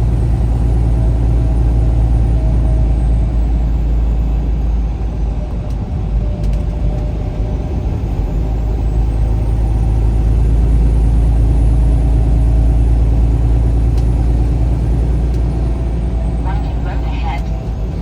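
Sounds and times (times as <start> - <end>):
vehicle engine and road rumble: 0.0 - 18.0.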